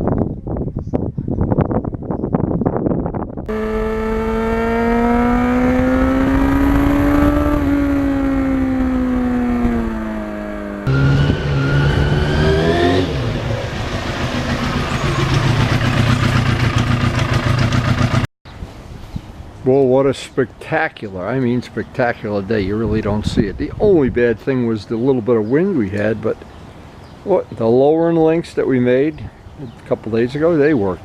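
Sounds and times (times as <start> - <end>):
motorcycle engine revving: 3.5 - 18.3.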